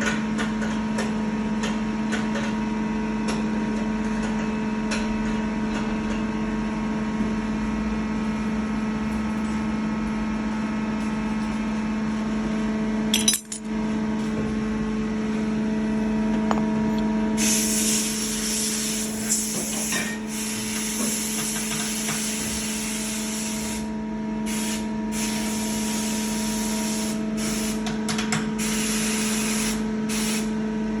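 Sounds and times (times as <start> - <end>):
loud hiss of spray: 17.4 - 23.9, 24.5 - 27.8, 28.6 - 30.5.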